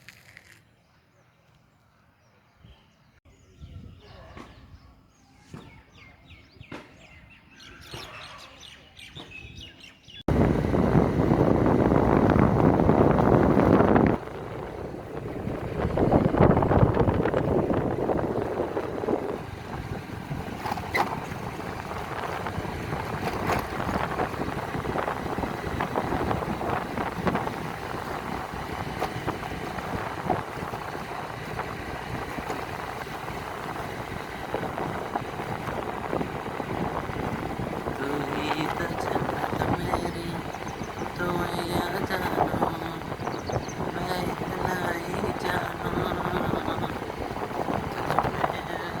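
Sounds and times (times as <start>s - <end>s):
small birds chirping: 0.2s - 10.3s, 20.6s - 49.0s
wind buffeting microphone: 2.6s - 49.0s
low outdoor rumble: 10.3s - 49.0s.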